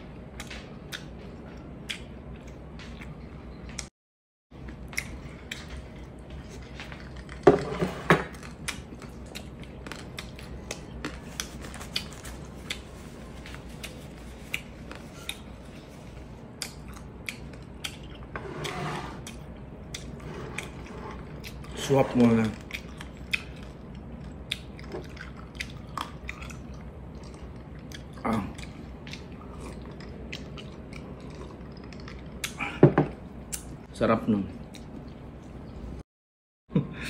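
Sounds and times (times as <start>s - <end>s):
person chewing food: 4.6s - 7.4s, 8.3s - 18.3s, 19.2s - 33.8s.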